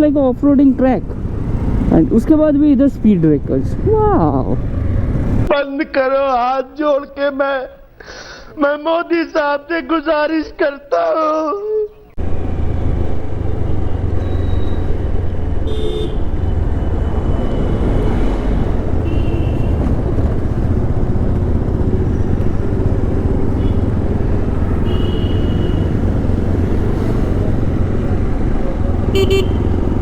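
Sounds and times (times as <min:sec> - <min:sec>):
motorcycle engine: 0:00.0 - 0:05.5, 0:12.2 - 0:30.0
traffic: 0:00.0 - 0:06.5, 0:09.2 - 0:30.0.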